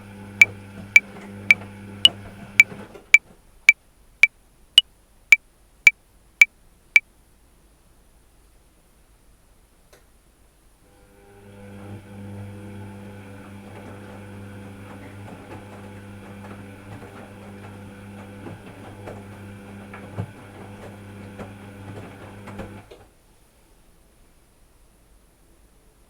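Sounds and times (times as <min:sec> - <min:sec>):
washing machine motor hum: 0:00.0 - 0:03.2, 0:10.9 - 0:23.1.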